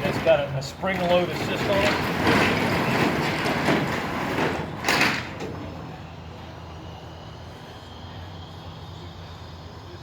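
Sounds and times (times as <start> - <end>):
door banging to a stop: 0.0 - 5.8
roll-up door rattling: 0.0 - 5.9.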